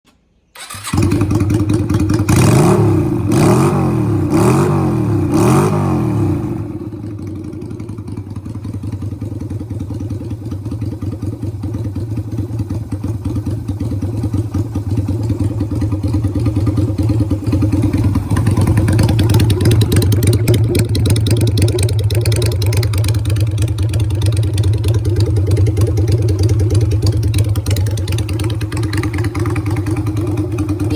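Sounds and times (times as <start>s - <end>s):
motorcycle engine revving and idling: 0.6s - 30.9s.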